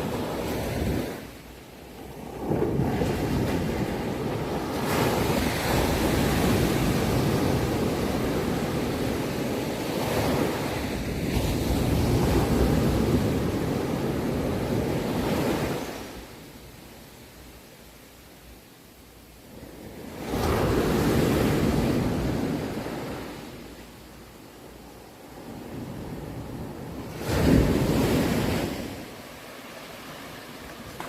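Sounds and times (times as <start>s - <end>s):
ocean surf rushing: 0.0s - 16.3s, 24.6s - 31.0s.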